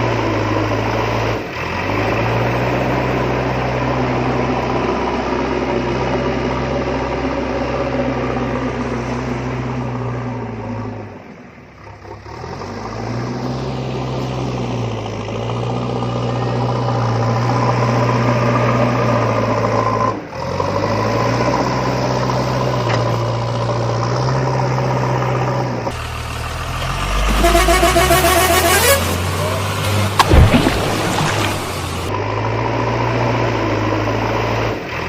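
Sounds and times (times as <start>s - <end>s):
engine running: 14.0s - 35.0s.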